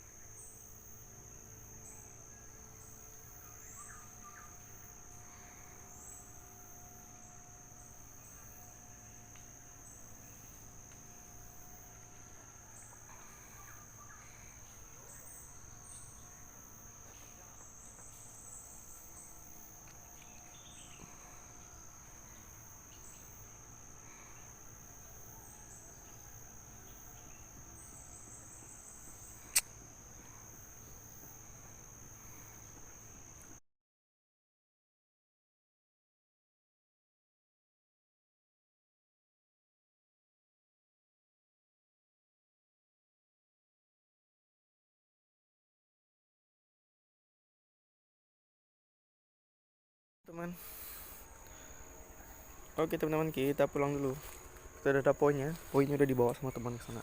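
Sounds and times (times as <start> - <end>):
insects droning: 0.0 - 33.6, 50.3 - 57.0
sharp snap: 29.5 - 29.7.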